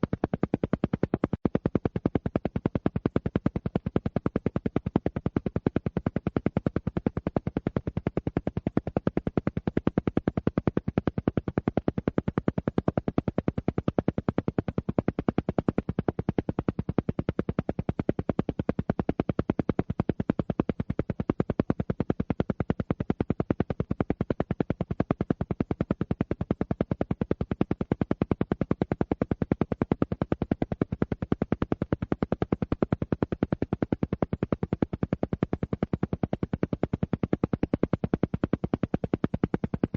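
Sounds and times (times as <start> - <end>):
rapid evenly spaced pulses: 14.2 - 39.9.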